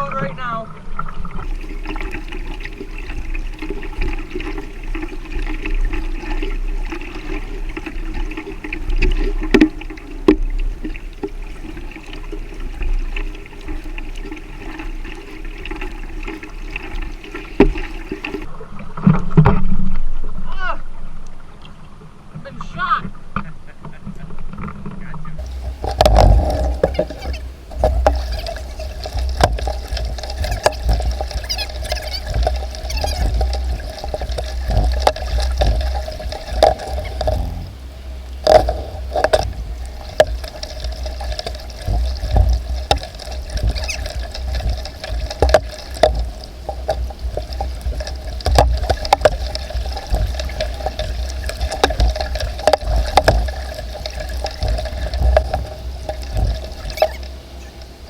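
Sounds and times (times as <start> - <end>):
paddle splashing water: 1.4 - 18.5, 25.4 - 58.0
small knocks: 1.4 - 18.5, 25.4 - 58.0
water running and dripping: 1.4 - 18.5, 25.4 - 58.0.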